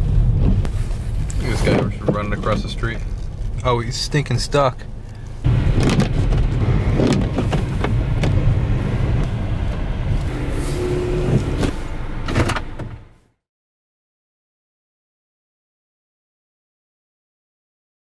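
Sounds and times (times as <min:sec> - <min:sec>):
car rumble: 0:00.0 - 0:13.3.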